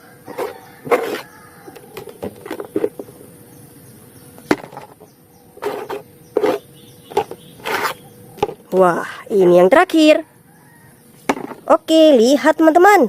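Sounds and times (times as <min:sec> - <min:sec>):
toys knocking and scraping: 0:00.3 - 0:03.2, 0:04.5 - 0:08.8, 0:11.2 - 0:11.7.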